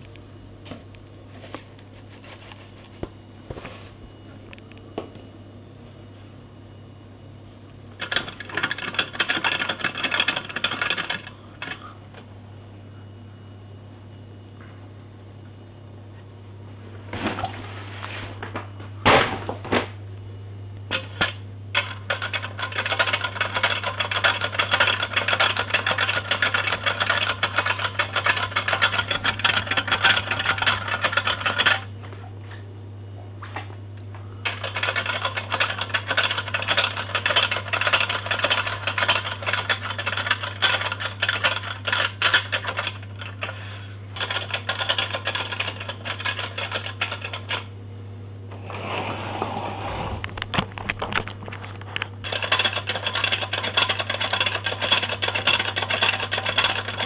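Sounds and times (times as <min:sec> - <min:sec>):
steady low hum: 0:00.0 - 0:57.0
toy washing machine clattering: 0:08.0 - 0:11.8, 0:20.9 - 0:31.9, 0:34.4 - 0:43.6, 0:44.2 - 0:47.7, 0:52.3 - 0:57.0.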